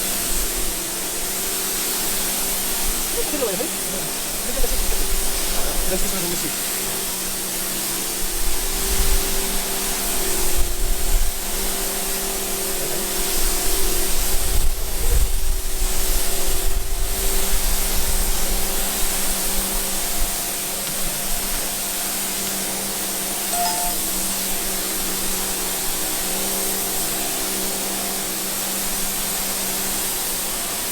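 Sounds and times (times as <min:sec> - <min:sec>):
pressure washer spraying: 0:00.0 - 0:10.4.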